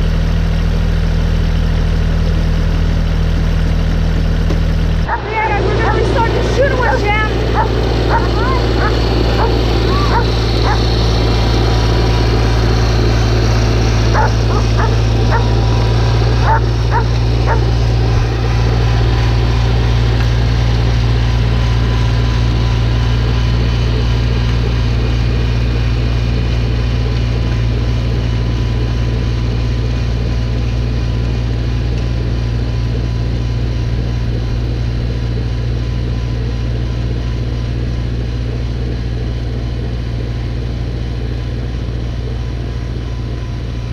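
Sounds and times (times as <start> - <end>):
snowblower engine running: 0.0 - 43.9
dog barking: 7.5 - 10.9, 14.1 - 15.6, 16.4 - 17.7.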